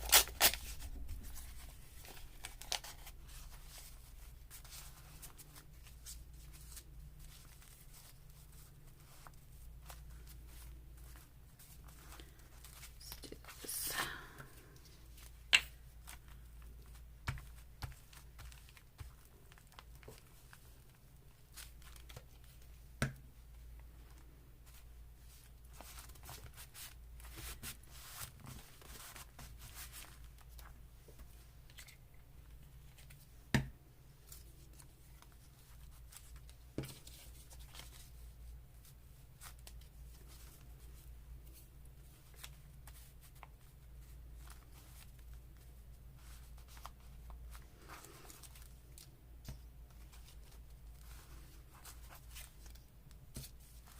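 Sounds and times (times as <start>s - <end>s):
paper rustling: 0.0s - 13.6s.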